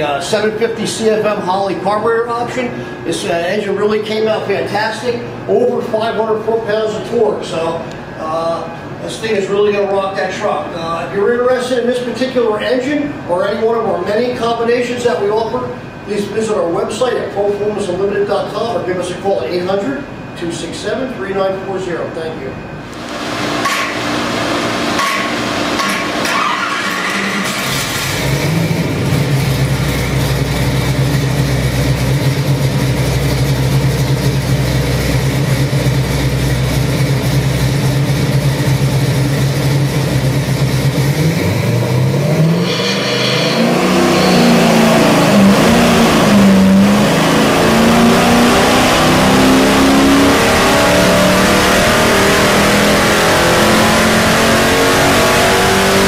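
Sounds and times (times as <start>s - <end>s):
engine running on dyno: 22.6s - 56.0s.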